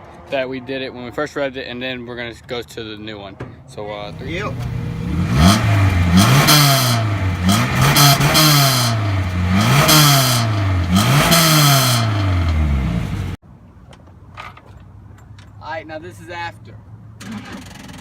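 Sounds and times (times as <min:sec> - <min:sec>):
car engine revving: 0:04.0 - 0:13.4.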